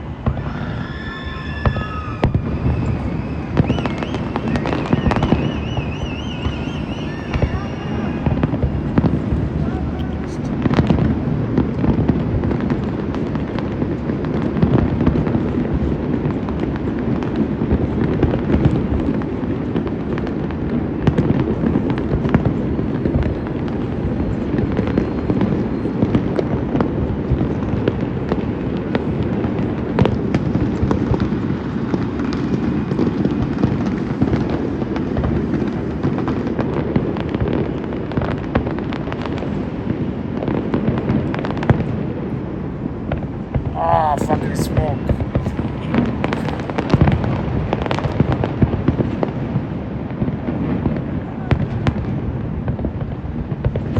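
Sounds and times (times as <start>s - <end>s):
firework cracks and pops: 0.2s - 9.7s
rumble of firework bursts: 1.6s - 13.8s.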